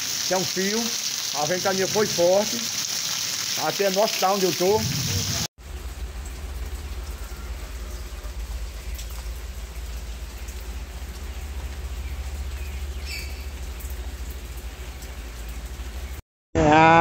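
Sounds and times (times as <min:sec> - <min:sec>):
rain on tree foliage: 0:00.0 - 0:16.2
low rumble: 0:04.8 - 0:16.2.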